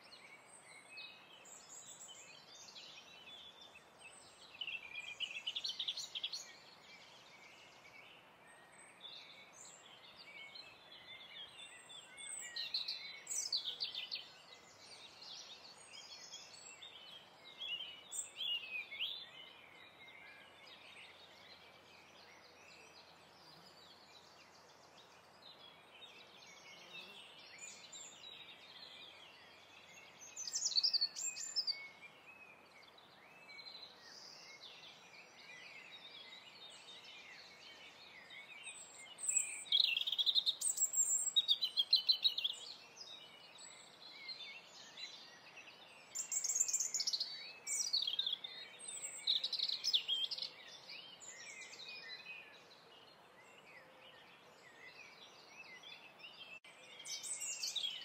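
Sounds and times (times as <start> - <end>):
faint steady hiss: 0.0 - 58.0
birds chirping and singing: 0.4 - 58.0.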